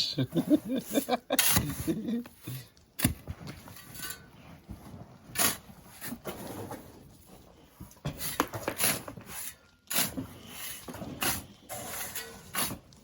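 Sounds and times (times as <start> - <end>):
sand being shovelled: 0.1 - 7.3, 8.1 - 13.0
sharp shovel strikes: 1.4 - 1.9.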